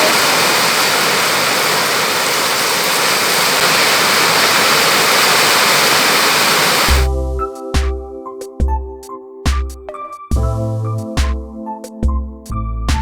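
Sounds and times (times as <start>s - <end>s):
heavy rain pouring: 0.0s - 7.1s.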